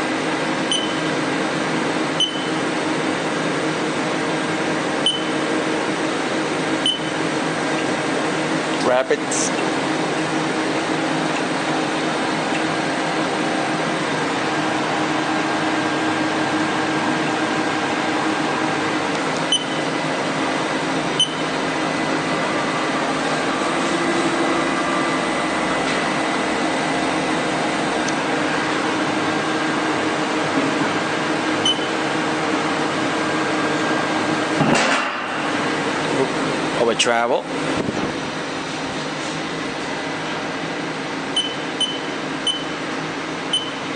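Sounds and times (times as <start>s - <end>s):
mechanical hum with held tones: 0.0s - 43.9s.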